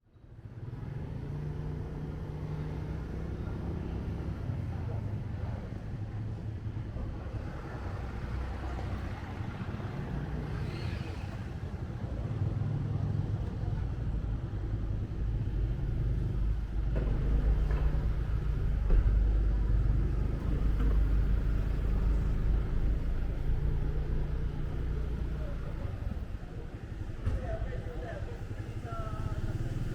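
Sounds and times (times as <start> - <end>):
street traffic: 0.0 - 29.9
motorbike engine rumbling: 11.5 - 29.9.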